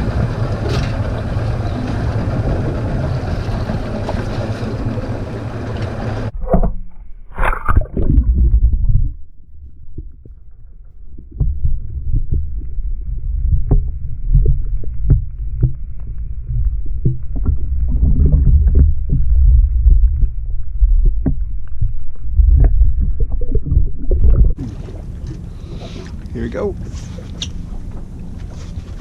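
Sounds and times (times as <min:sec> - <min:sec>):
boat engine rumbling: 0:00.0 - 0:29.0.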